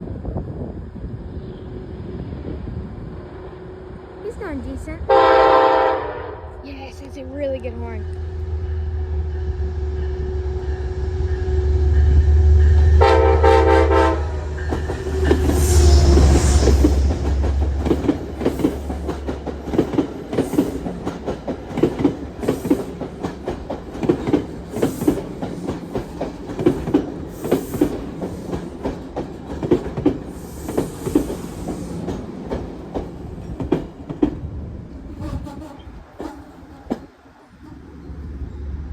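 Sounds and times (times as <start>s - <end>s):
train engine rumbling: 0.0s - 38.9s
train horn blast: 5.1s - 6.6s, 7.9s - 17.1s
train wheels clicking over rail joints: 14.5s - 38.3s.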